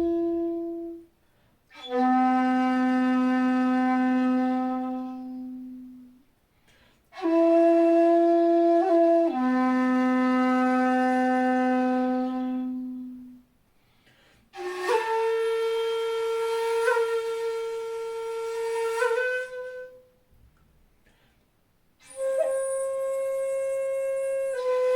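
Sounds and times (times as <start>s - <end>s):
bamboo flute long notes: 0.0s - 1.1s, 1.7s - 6.2s, 7.2s - 13.4s, 14.6s - 20.2s, 22.0s - 24.9s.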